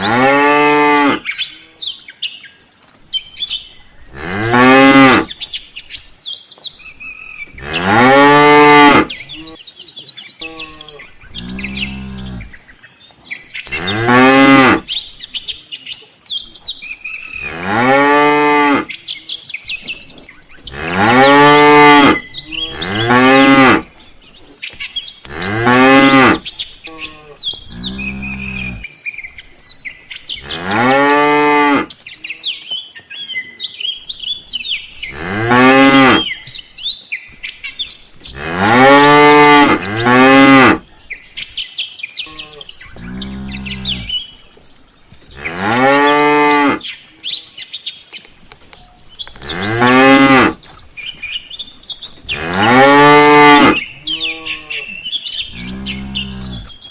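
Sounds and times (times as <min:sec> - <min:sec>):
birds chirping: 0:00.0 - 0:56.9
cattle mooing: 0:07.5 - 0:09.6, 0:10.4 - 0:12.6, 0:13.7 - 0:14.9, 0:17.4 - 0:18.9, 0:20.6 - 0:23.8, 0:25.3 - 0:28.9, 0:35.1 - 0:36.3, 0:38.3 - 0:40.8, 0:42.3 - 0:44.2, 0:52.3 - 0:54.9, 0:55.5 - 0:56.7.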